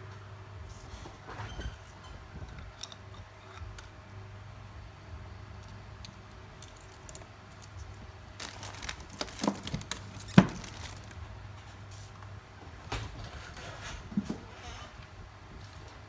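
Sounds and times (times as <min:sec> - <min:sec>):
low electrical hum: 0:00.0 - 0:16.0
small handling clicks and rustles: 0:05.6 - 0:12.3.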